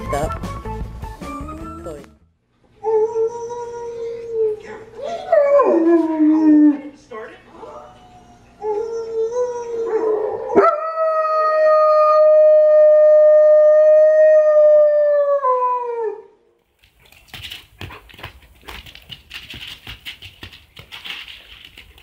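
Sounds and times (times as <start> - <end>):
dog howling: 2.8 - 6.9, 7.6 - 16.4
scuffling noises: 16.7 - 22.0.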